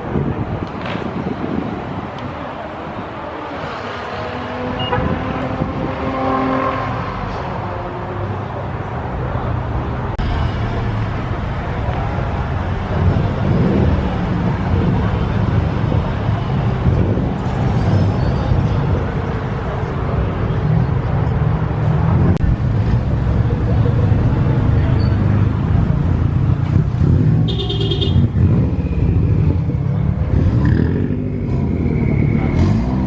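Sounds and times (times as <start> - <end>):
car engines rumbling: 0.0 - 33.0
crowd voices: 8.3 - 33.0.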